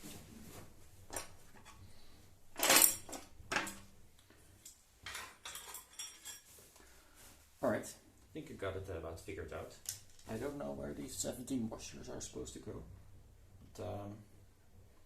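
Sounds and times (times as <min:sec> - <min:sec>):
metal hardware clinking: 0:02.6 - 0:03.9, 0:04.6 - 0:06.5.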